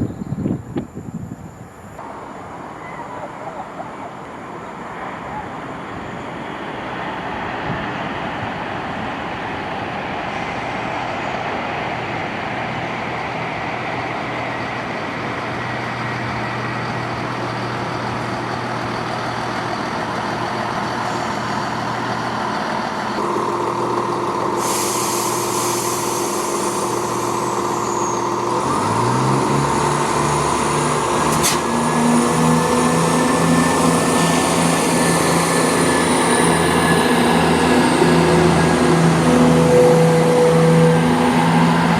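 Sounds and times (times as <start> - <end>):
train approaching: 1.9 - 41.9
steady whine: 13.3 - 41.9
traction motor note rising: 20.7 - 41.9.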